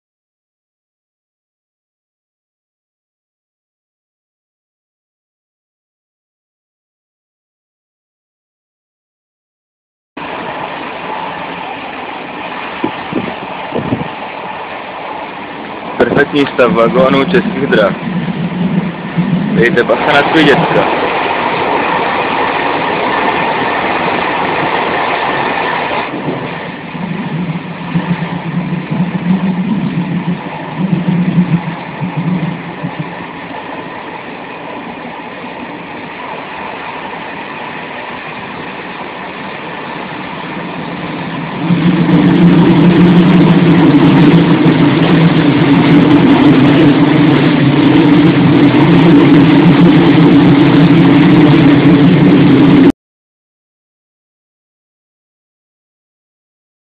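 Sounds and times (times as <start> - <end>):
deep hum: 10.2 - 37.0, 38.1 - 52.9
rushing air: 10.2 - 52.9
train rumbling on track: 10.2 - 52.9.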